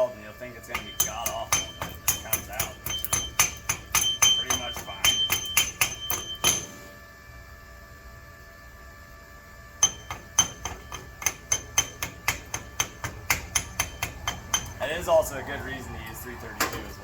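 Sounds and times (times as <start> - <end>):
steel ringing: 0.0 - 6.9, 9.8 - 15.3
hammer tapping on metal: 0.6 - 6.8, 9.8 - 14.8.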